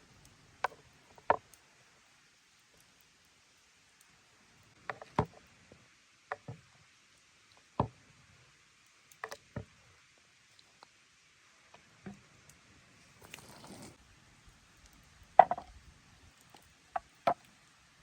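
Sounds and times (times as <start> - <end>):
soft rustle: 12.9 - 14.0.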